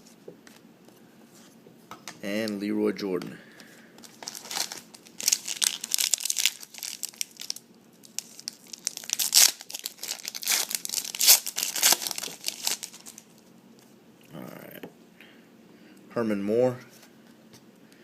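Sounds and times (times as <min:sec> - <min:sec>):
card pack wrapper tearing and crinkling: 0:04.0 - 0:13.2.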